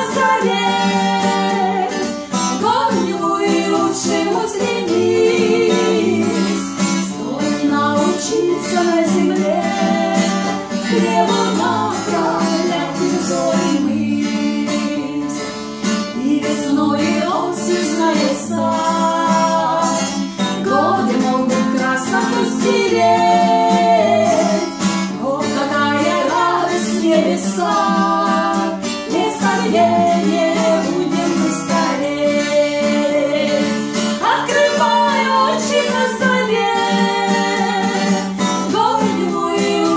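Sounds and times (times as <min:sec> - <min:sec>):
acoustic guitar: 0:00.0 - 0:39.9
woman singing: 0:00.0 - 0:39.9.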